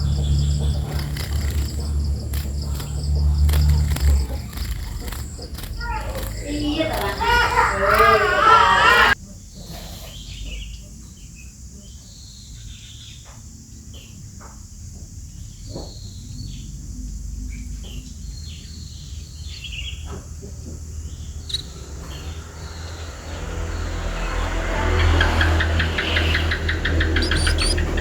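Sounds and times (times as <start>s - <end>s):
steady low rumble: 0.0s - 6.6s
sparrows chirping: 0.0s - 28.0s.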